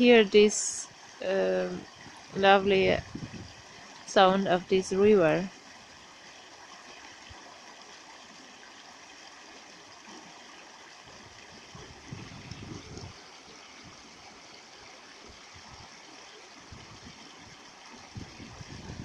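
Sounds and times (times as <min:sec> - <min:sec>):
river water rushing: 0:05.5 - 0:19.0.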